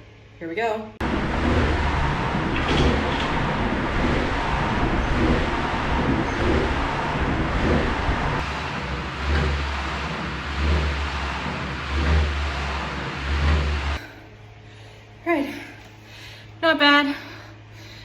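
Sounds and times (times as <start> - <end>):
air flywheel whooshing: 1.0 - 14.2.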